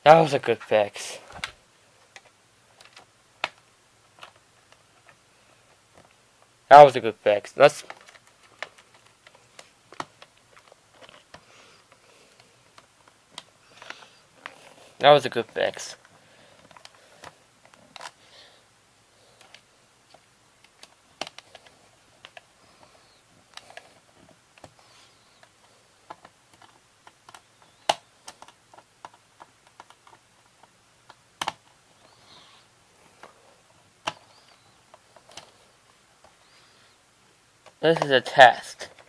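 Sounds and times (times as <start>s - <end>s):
plastic cassette clicking: 1.4s - 5.2s, 7.8s - 14.6s, 19.4s - 22.5s, 25.4s - 31.8s, 34.0s - 35.6s.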